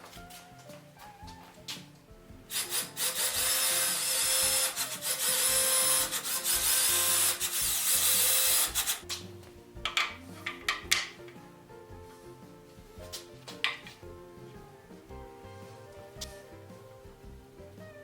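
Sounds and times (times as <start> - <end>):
background music: 0.0 - 18.0
power tool running on wood: 2.5 - 9.0.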